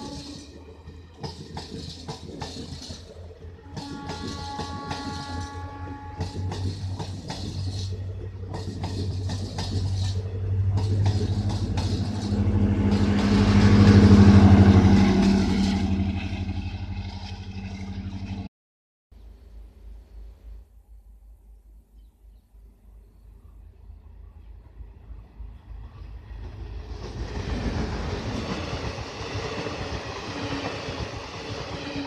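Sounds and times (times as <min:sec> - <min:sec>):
train horn: 0:00.0 - 0:00.5, 0:03.6 - 0:07.2
wheels clattering over rail joints: 0:00.0 - 0:18.4
train engine drone: 0:00.0 - 0:18.5, 0:22.7 - 0:32.0.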